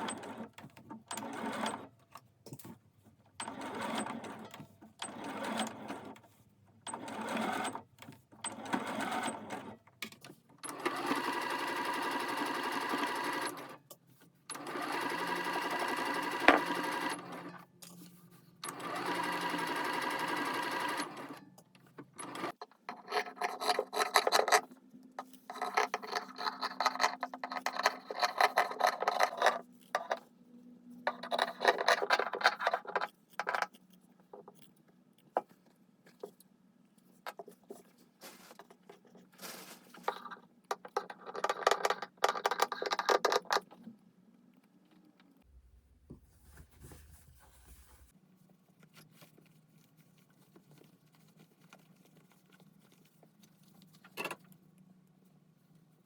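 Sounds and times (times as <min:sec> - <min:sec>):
sewing machine stitching: 0:00.0 - 0:01.9, 0:03.4 - 0:06.2, 0:06.9 - 0:07.8, 0:08.4 - 0:09.8, 0:10.6 - 0:13.8, 0:14.5 - 0:17.7, 0:18.6 - 0:21.4, 0:22.1 - 0:22.6.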